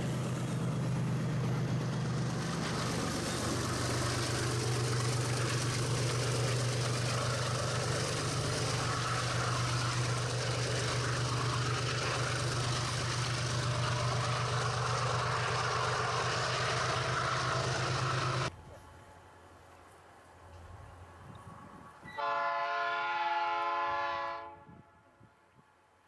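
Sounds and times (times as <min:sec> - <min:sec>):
engine running with low hum: 0:00.0 - 0:18.8.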